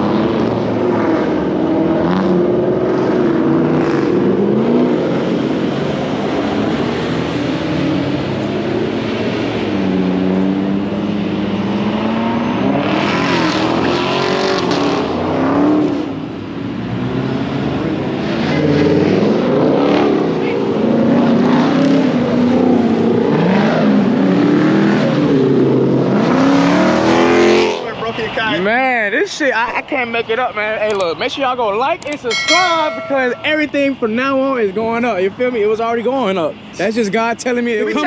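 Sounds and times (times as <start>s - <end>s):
car engines revving: 0.0s - 28.4s.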